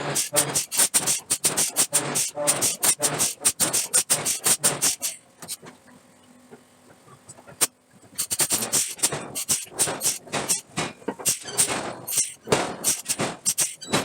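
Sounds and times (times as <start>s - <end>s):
forging hammer striking steel: 8.6s - 14.0s.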